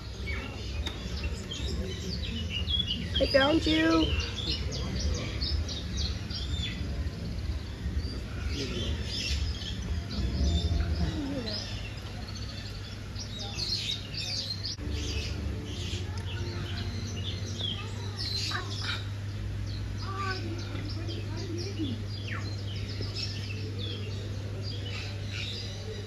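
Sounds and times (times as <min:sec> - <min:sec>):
small birds chirping: 0:00.0 - 0:26.0
low hum: 0:14.7 - 0:26.0.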